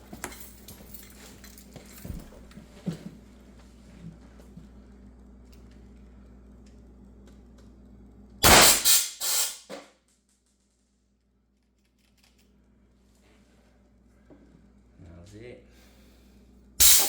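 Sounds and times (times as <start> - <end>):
rushing bursts of air: 8.4 - 9.6, 16.8 - 17.0
air gun firing blast: 8.4 - 9.8, 16.8 - 17.0.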